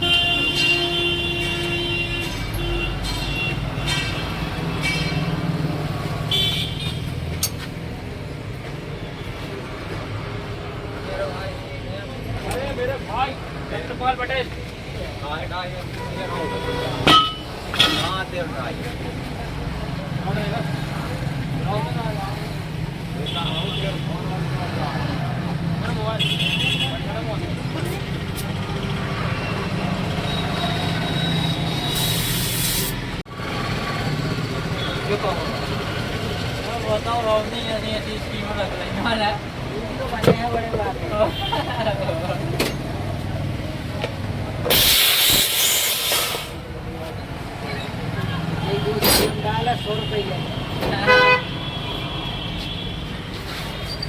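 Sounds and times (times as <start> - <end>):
road traffic: 0.0 - 54.0
hiss burst: 44.7 - 46.6.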